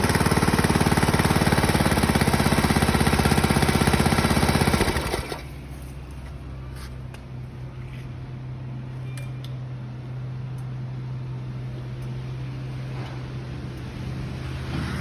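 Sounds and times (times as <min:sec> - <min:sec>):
pressure washer motor running: 0:00.0 - 0:05.6.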